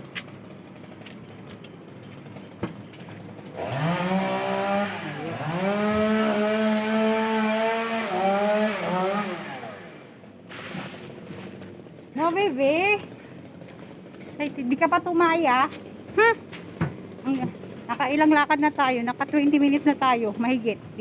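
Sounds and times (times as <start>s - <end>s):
small engine revving: 3.5s - 10.2s.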